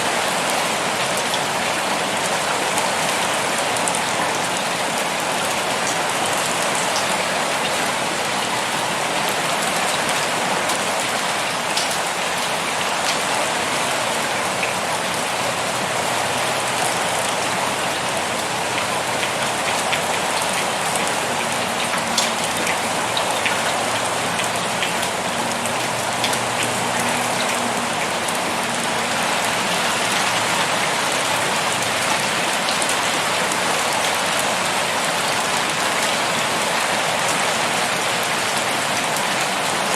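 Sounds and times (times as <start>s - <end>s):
heavy rain pouring: 0.0s - 39.9s
raindrop ticks: 18.7s - 28.4s.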